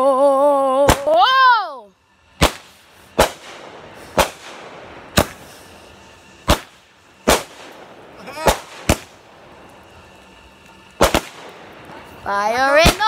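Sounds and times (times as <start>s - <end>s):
fireworks sharp bangs: 2.4s - 9.6s, 10.9s - 13.0s.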